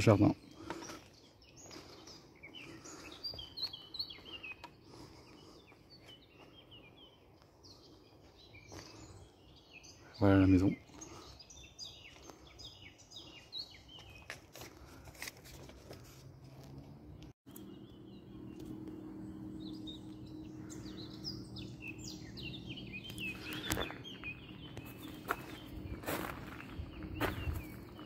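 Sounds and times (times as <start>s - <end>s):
small birds chirping: 0.0s - 28.0s
faint low hum: 16.8s - 28.0s.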